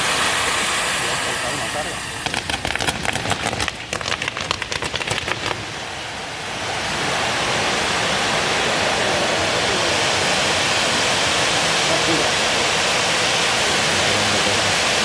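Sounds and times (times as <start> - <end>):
rushing hiss: 0.0 - 15.0
fireworks crackling: 2.1 - 6.2.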